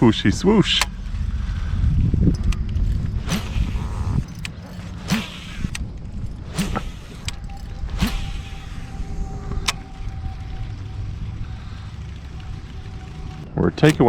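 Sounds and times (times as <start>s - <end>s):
wind buffeting microphone: 0.0s - 14.0s
faint steady high tone: 7.2s - 14.0s
sharp clicks and knocks: 12.0s - 14.0s.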